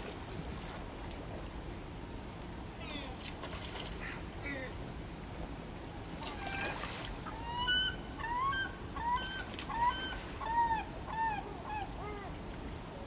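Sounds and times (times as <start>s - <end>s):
rushing water: 6.0s - 8.9s.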